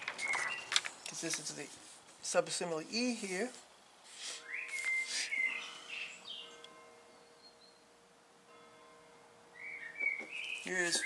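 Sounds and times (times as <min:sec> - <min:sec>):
paper rustling: 0:00.0 - 0:02.2
songbird whistling: 0:00.2 - 0:00.7, 0:04.4 - 0:07.8, 0:09.6 - 0:11.0.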